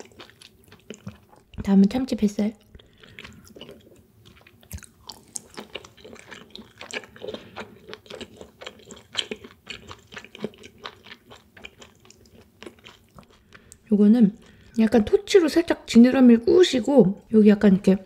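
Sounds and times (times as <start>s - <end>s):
chewing mouth clicks and smacks: 2.6s - 14.7s.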